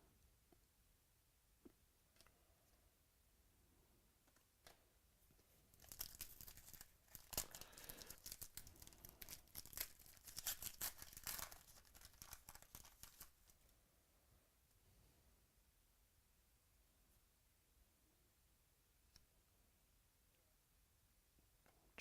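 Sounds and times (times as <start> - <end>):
wrapper tearing and crinkling: 5.8 - 13.5.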